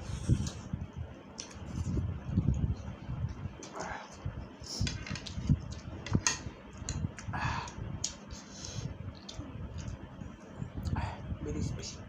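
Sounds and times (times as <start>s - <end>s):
noodles being chewed: 4.9s - 10.0s.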